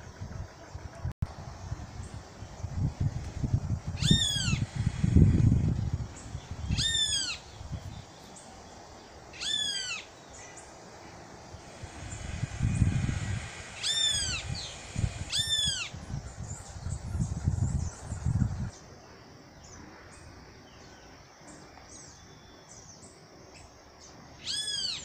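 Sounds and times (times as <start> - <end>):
bird calling nasal notes: 6.2 - 7.8, 9.3 - 18.2.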